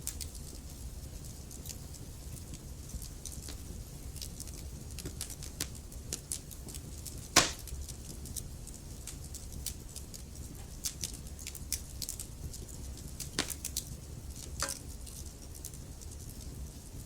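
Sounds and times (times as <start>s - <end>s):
burning logs crackling: 0.0s - 17.0s
low rumble of fire: 0.0s - 17.0s
loud pops: 7.4s - 7.7s.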